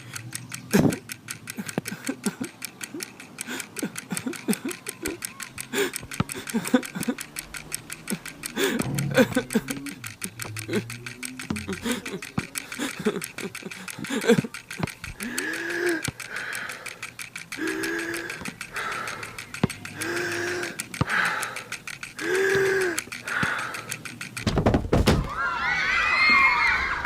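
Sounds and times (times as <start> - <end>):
grunts: 8.6 - 13.2
heavy thud: 24.4 - 25.3
running feet on gym floor: 24.4 - 25.3
loud wavering high cry: 25.3 - 27.0.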